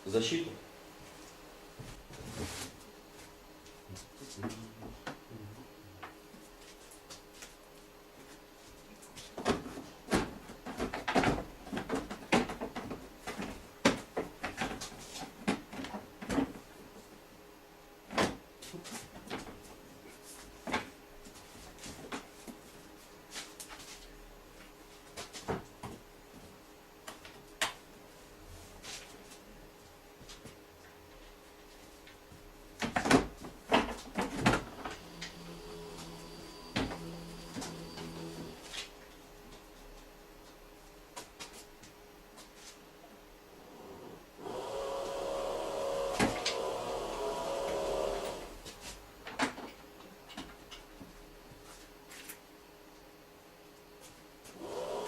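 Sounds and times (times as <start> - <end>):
car parts knocking and clattering: 9.4 - 16.7.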